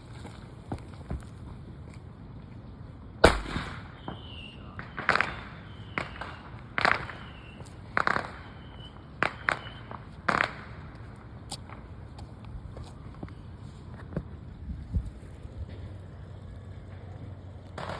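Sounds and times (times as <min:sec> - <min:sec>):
firecrackers popping: 0:03.2 - 0:12.4, 0:17.6 - 0:17.9.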